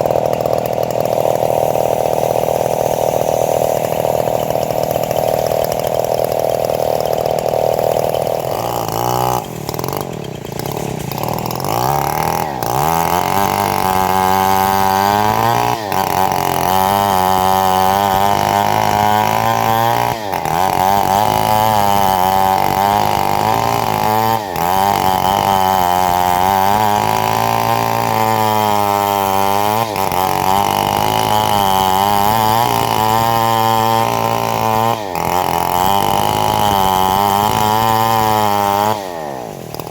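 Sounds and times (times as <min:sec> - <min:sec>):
bandsaw mill sawing a log: 0:00.0 - 0:39.9.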